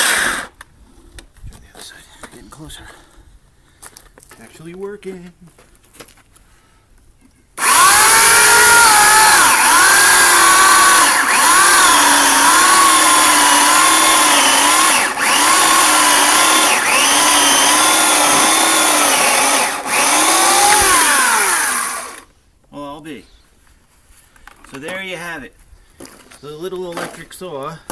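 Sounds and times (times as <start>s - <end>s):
electric chainsaw cutting log: 0.0s - 0.6s, 7.6s - 22.3s.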